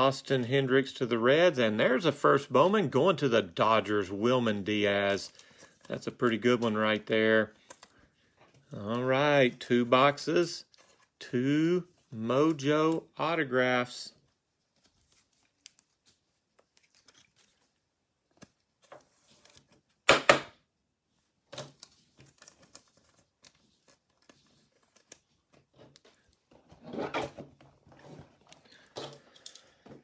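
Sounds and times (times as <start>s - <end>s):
packaging rustling and clicking: 21.5s - 30.0s.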